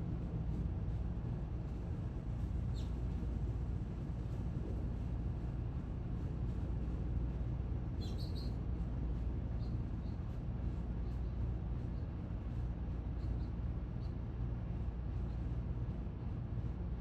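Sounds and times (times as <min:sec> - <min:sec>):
low outdoor rumble: 0:00.0 - 0:17.0
small bird chirping: 0:08.0 - 0:08.6.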